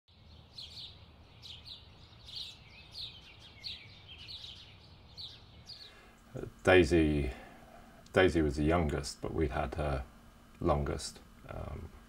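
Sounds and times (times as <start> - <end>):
songbird chirping: 0.1 - 7.4.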